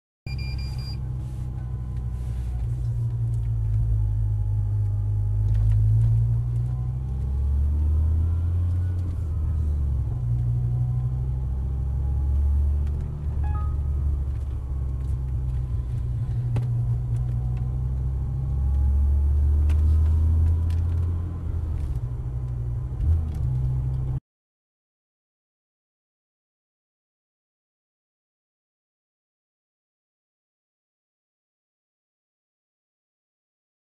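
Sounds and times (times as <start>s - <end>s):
car engine deep rumble: 0.3s - 24.2s.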